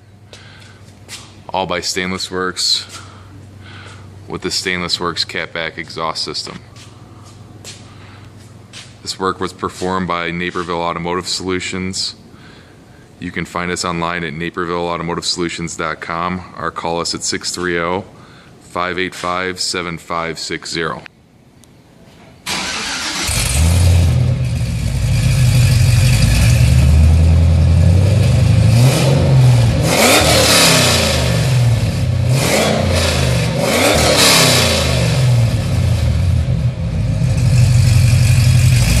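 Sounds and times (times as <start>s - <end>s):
car engine idling and revving: 23.0s - 39.0s.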